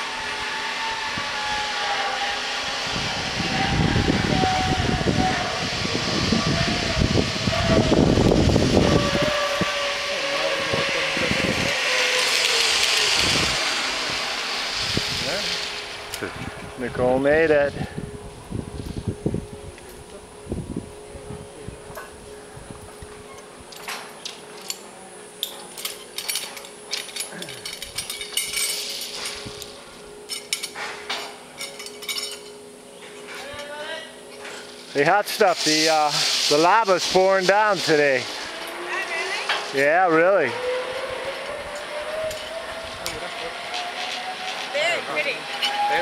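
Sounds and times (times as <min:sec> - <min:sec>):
zipline pulleys whirring on cable: 0:00.0 - 0:46.0
wind on microphone: 0:02.8 - 0:10.0, 0:10.6 - 0:11.8, 0:13.1 - 0:15.5, 0:16.2 - 0:17.0, 0:17.7 - 0:23.0
metallic clinking of carabiners: 0:23.3 - 0:32.6.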